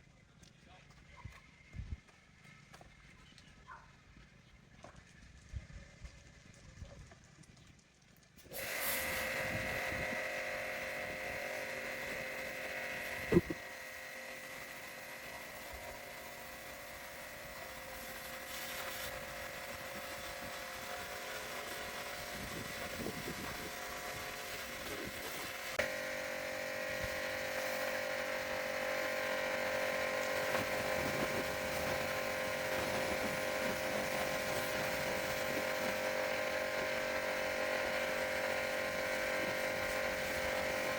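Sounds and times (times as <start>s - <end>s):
electric power tool whining: 8.4s - 40.9s.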